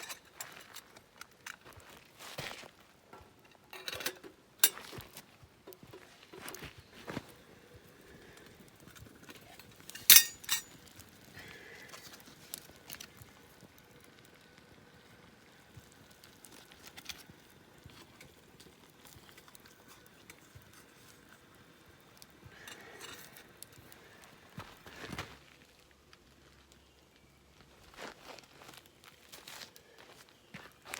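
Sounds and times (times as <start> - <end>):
metal objects clinking: 3.6 - 4.9, 9.4 - 11.0.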